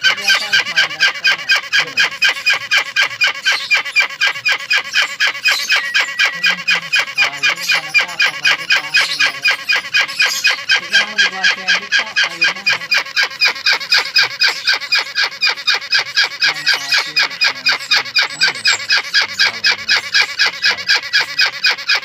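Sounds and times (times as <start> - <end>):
young hornbills honking calls: 0.0 - 22.0.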